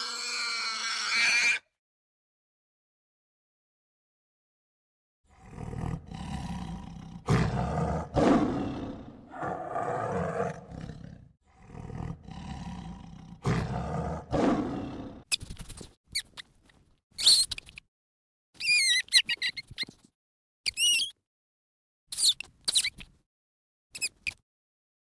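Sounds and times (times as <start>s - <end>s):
tiger roaring and growling: 5.3s - 15.2s
monkey clicks and squeaks: 15.3s - 17.9s, 18.6s - 20.1s, 20.7s - 21.2s, 22.1s - 23.2s, 23.9s - 24.4s.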